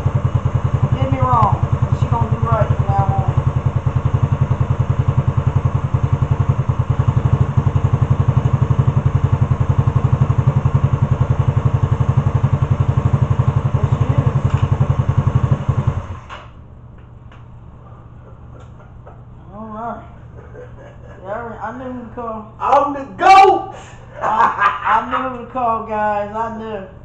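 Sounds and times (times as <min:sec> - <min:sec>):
motorcycle engine idling: 0:00.0 - 0:16.3.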